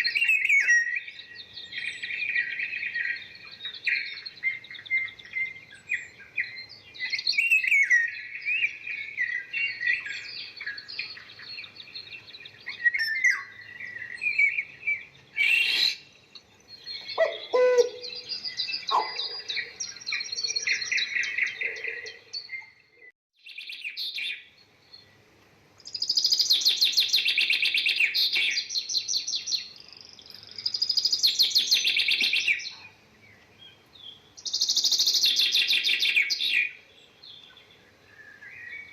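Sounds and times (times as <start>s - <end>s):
loud rapid bird trills: 0.0s - 16.1s
small birds chirping: 0.0s - 38.9s.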